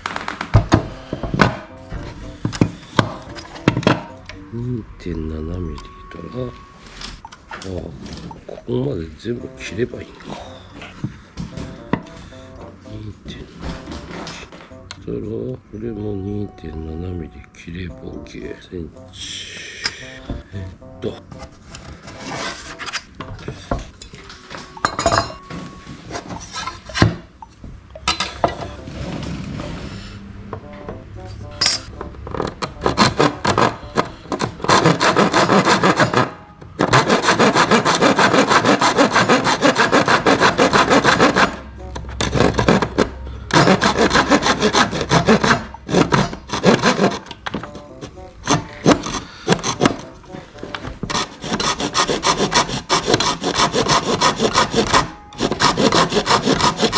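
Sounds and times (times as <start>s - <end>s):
handling noises: 0.0s - 4.9s, 5.6s - 15.8s
saw rasping: 31.2s - 56.9s.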